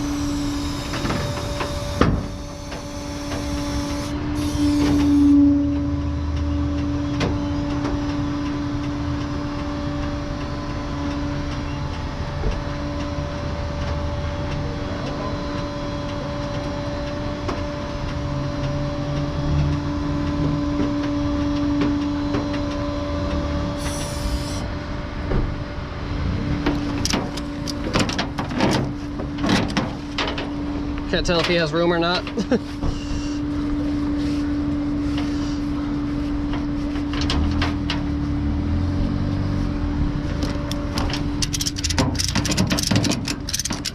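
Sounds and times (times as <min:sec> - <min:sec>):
steady hum: 0:00.0 - 0:05.8.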